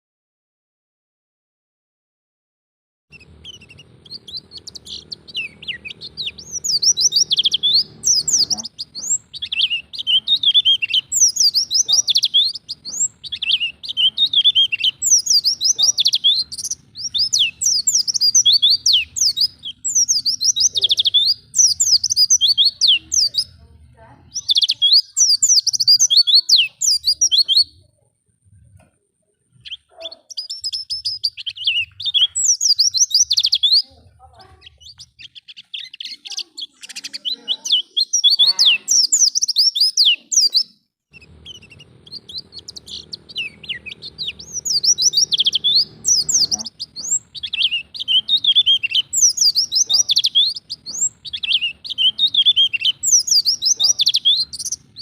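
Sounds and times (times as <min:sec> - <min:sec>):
bird twittering song: 0:03.1 - 0:55.0.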